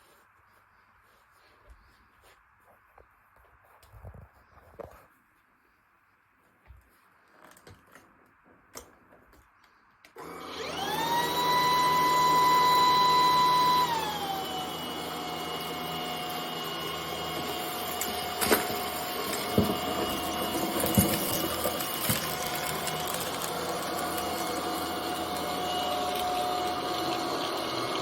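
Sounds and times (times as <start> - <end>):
vacuum cleaner motor whine: 10.1 - 28.0.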